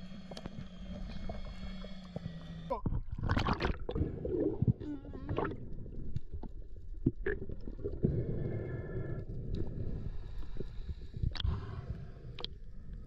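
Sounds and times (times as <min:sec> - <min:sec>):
muffled underwater gurgling: 0:00.0 - 0:10.1.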